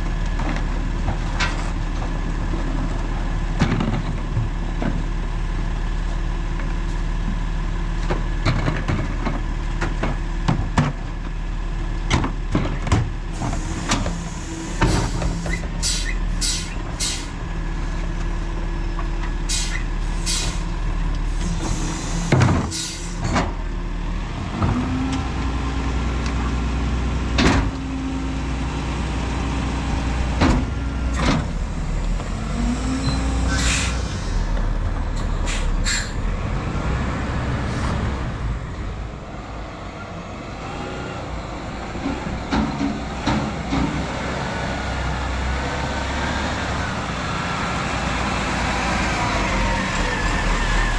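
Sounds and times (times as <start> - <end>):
garbage truck running: 0.0 - 50.9
air brake hiss: 13.4 - 17.4, 19.5 - 20.7, 21.3 - 23.2, 33.4 - 34.5, 35.2 - 36.2.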